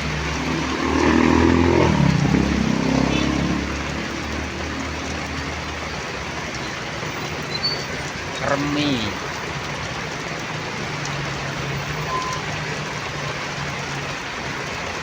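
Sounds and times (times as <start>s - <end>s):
vehicle engine passing by: 0.0s - 5.9s
heavy rain hiss: 0.0s - 15.0s.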